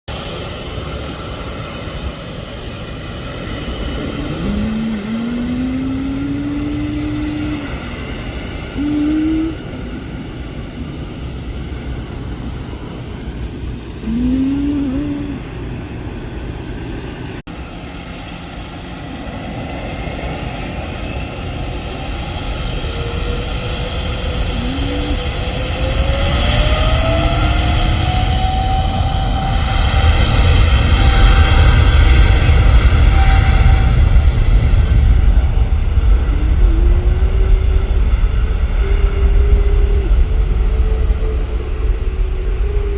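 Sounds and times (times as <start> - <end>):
airliner engines running: 0.1 - 42.9
short rising whines: 3.4 - 10.3, 13.7 - 16.6, 21.8 - 28.8
high climbing tone: 4.0 - 7.7, 13.8 - 16.5.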